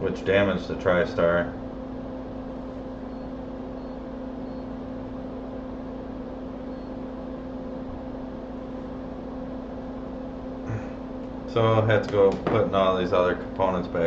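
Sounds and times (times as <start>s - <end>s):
equipment humming and hissing: 0.0s - 14.0s.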